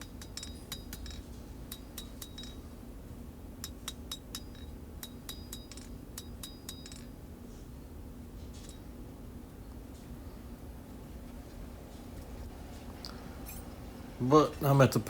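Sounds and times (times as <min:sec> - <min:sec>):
hammer striking steel on anvil: 0:00.0 - 0:02.6, 0:03.6 - 0:07.1
steady low hum: 0:00.0 - 0:15.0.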